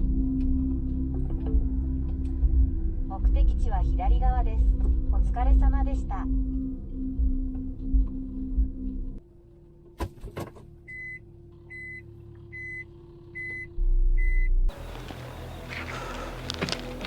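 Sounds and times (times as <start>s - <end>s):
loud low rumble: 0.0s - 9.2s
steady low hum: 0.0s - 17.0s
electronic beeps: 13.4s - 14.5s.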